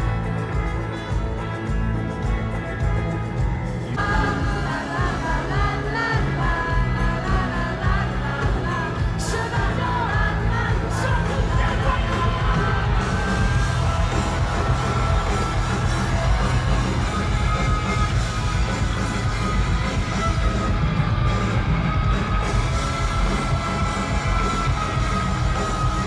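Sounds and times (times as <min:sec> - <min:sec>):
live pop-rock band: 0:00.0 - 0:26.0
lead vocal singing: 0:03.9 - 0:19.3
crowd shouting: 0:10.2 - 0:26.0.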